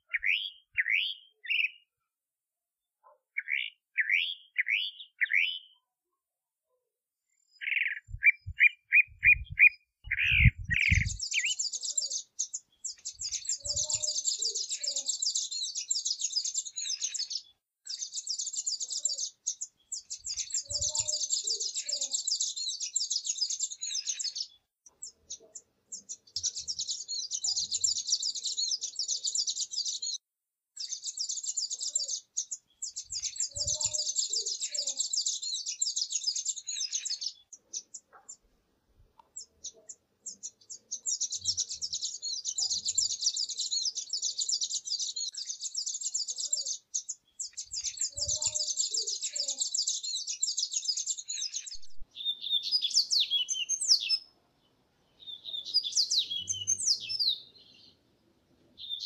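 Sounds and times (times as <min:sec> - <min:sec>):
bird clear lower phrase: 0:07.6 - 0:12.3, 0:20.4 - 0:22.4
bird high rapid twittering: 0:07.6 - 0:25.3, 0:30.8 - 0:38.4, 0:39.4 - 0:54.2.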